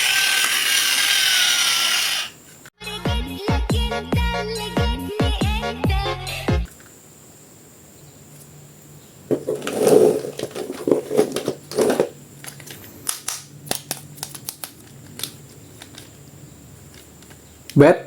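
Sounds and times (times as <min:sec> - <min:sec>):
plastic packaging rustling: 0:09.3 - 0:12.8.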